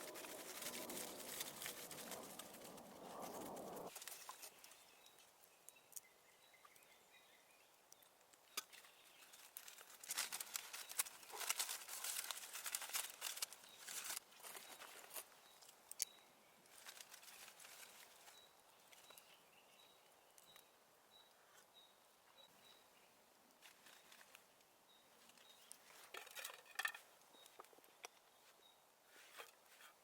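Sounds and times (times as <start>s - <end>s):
crackles and rustling clicks: 0.0s - 5.3s, 7.9s - 19.2s.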